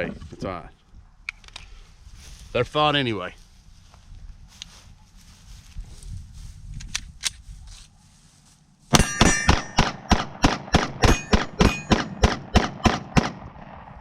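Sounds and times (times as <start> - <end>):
pistol fired rapidly: 8.9 - 13.5.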